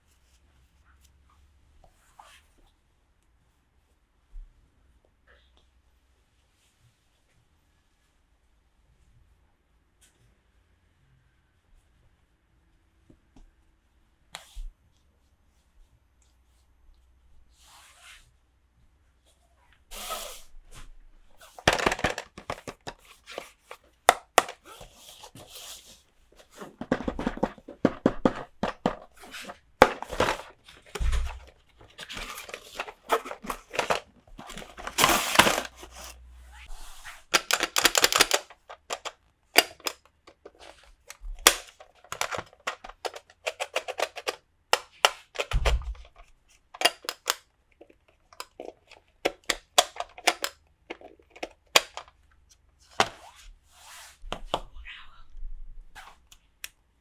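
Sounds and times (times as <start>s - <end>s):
packaging rustling: 21.4s - 46.2s
plastic toy pieces clicking: 21.5s - 24.6s, 26.6s - 36.1s, 37.3s - 46.1s, 46.8s - 52.1s.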